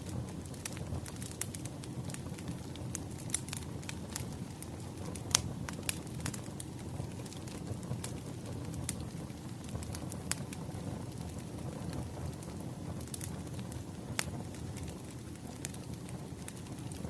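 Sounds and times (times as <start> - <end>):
fire popping and snapping: 0.0 - 17.0
fire rumbling: 0.0 - 17.0.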